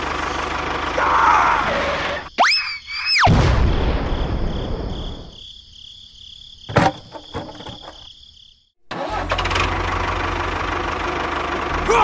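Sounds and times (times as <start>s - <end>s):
low tractor engine running: 0.0s - 2.3s, 8.9s - 12.0s
cartoon crash rumble: 3.2s - 4.8s.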